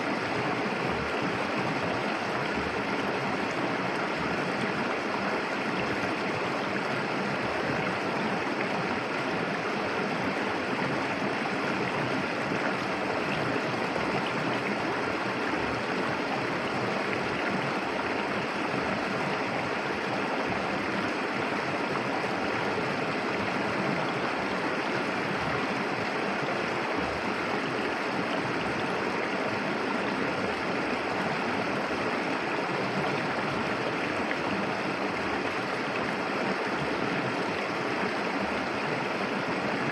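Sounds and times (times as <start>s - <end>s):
river water rushing and gurgling: 0.0s - 39.9s.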